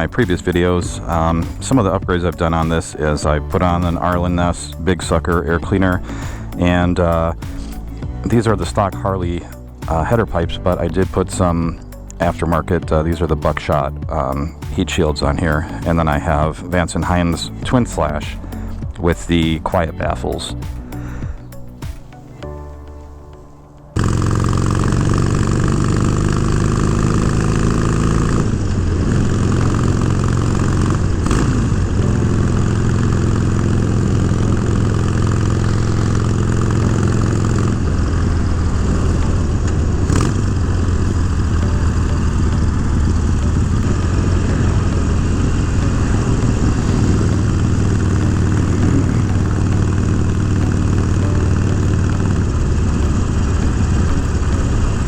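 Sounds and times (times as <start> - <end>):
motorcycle engine running: 0.0 - 23.0, 24.0 - 55.0.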